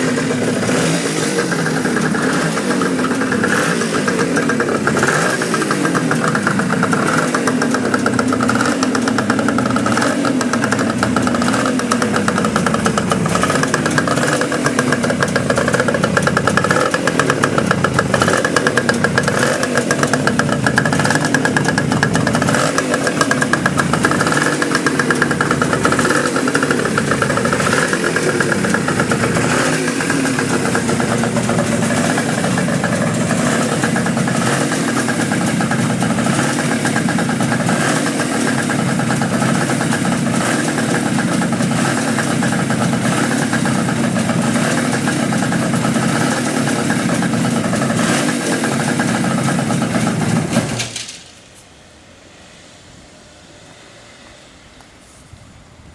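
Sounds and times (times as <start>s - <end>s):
two-stroke motorcycle engine idling: 0.0s - 51.3s.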